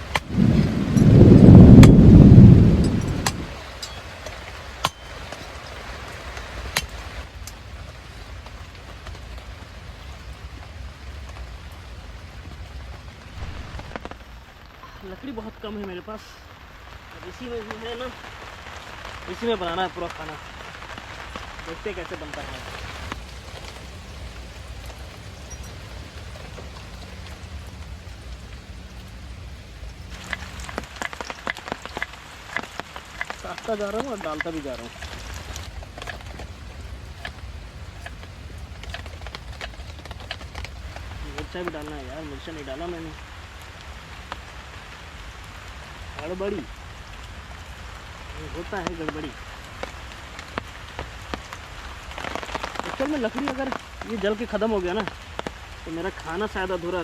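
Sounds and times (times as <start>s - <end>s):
low rumble: 0.0s - 3.9s, 6.9s - 15.1s, 22.3s - 31.8s
heavy rain falling: 0.0s - 57.0s.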